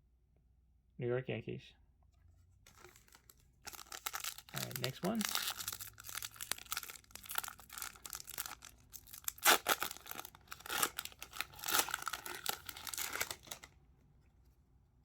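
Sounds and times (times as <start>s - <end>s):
wrapper tearing and crinkling: 2.7s - 13.8s.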